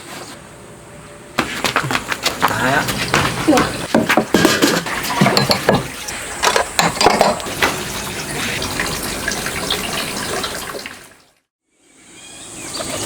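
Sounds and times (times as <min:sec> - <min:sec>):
water running: 0:02.3 - 0:11.4
clinks and knocks: 0:03.6 - 0:07.5.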